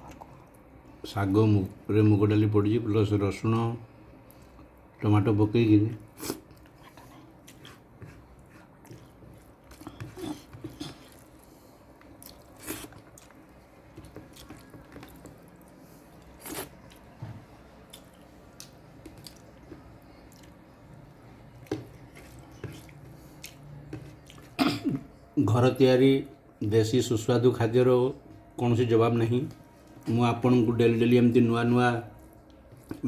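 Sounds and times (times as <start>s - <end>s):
faint chewing and mouth noises: 0.0s - 1.0s, 3.9s - 5.0s, 5.9s - 25.1s, 32.0s - 33.0s.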